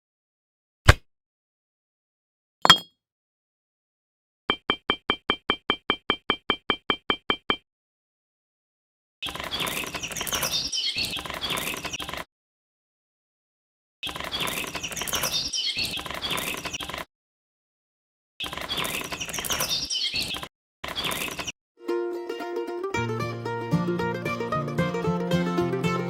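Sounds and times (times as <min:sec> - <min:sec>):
birds chirping: 0:09.2 - 0:12.2, 0:14.0 - 0:17.0, 0:18.4 - 0:21.5.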